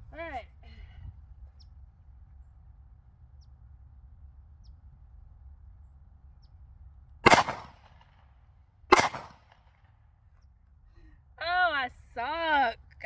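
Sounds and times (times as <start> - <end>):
faint low rumble: 0.0 - 8.9
pistol shot: 7.2 - 8.1, 8.9 - 9.6.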